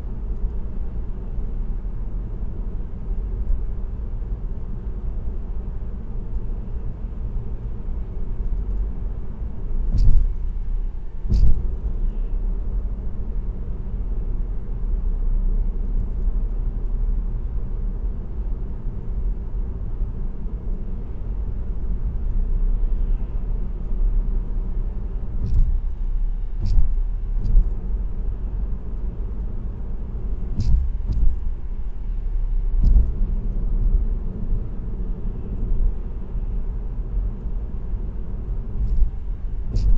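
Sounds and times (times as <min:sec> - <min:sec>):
road and tyre rumble: 0:00.0 - 0:39.9
short sharp knocks: 0:09.9 - 0:10.5, 0:11.3 - 0:11.7, 0:25.4 - 0:25.9, 0:26.6 - 0:27.8, 0:30.6 - 0:31.5, 0:32.8 - 0:33.2, 0:38.8 - 0:39.9.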